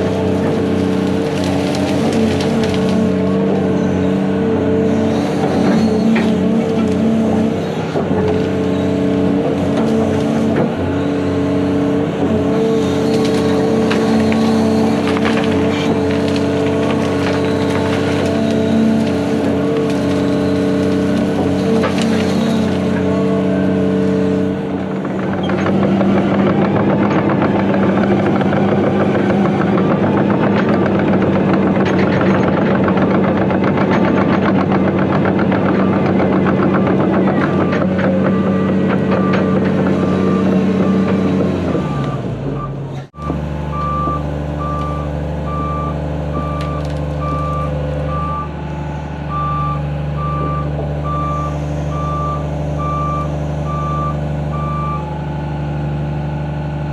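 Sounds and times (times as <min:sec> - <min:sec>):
brush and limbs snapping: 0:00.0 - 0:03.5, 0:12.6 - 0:24.2, 0:46.4 - 0:47.8
diesel machine running: 0:00.0 - 0:56.9
excavator diesel engine under load: 0:00.0 - 0:56.9
backup alarm beeping: 0:38.3 - 0:48.6.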